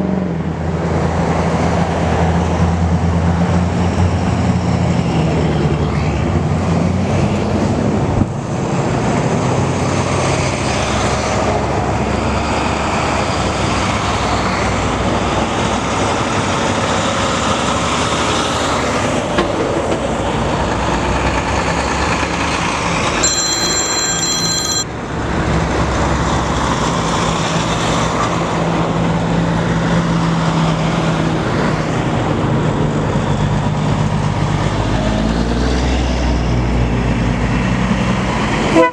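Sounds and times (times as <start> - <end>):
truck engines running: 0.0 - 38.9
brief high-pitched tone: 23.2 - 24.9.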